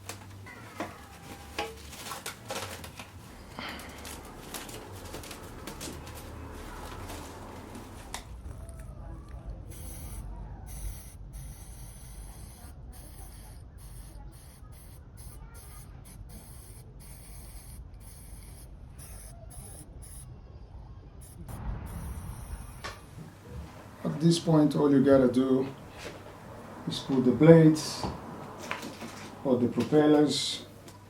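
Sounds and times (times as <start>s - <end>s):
faint rubbing sounds: 0.0s - 8.4s
rustling and handling noise: 0.0s - 9.0s, 28.0s - 31.0s
low steady background rumble: 0.0s - 31.0s.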